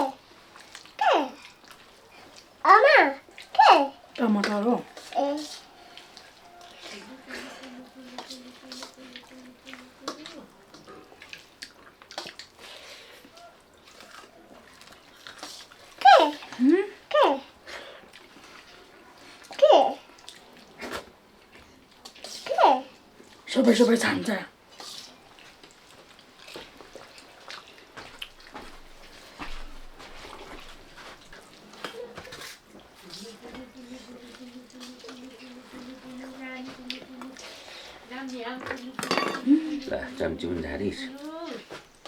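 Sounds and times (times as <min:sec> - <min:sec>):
wet eating noises: 0:00.0 - 0:42.0
light clicks and taps on plates: 0:38.4 - 0:39.6.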